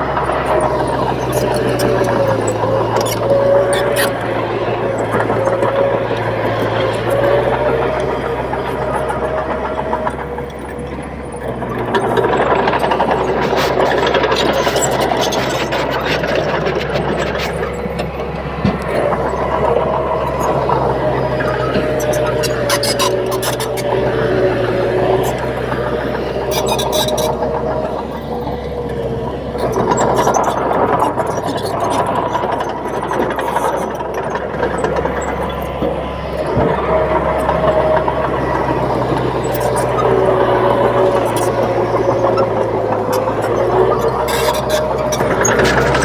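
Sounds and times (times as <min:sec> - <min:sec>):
bulldozer diesel engine running: 0:00.0 - 0:46.0.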